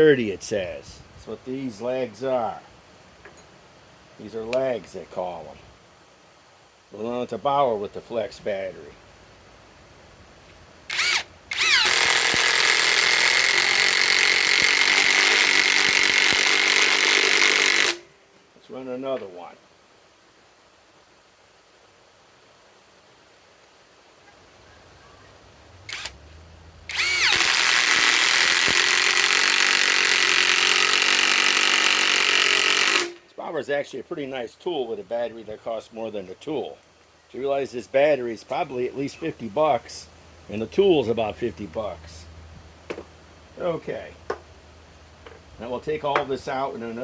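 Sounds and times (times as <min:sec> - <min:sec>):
impact wrench motor whine: 0:10.9 - 0:18.2, 0:25.9 - 0:26.3, 0:26.9 - 0:33.2
impact wrench hammering: 0:11.8 - 0:18.1, 0:26.9 - 0:33.2.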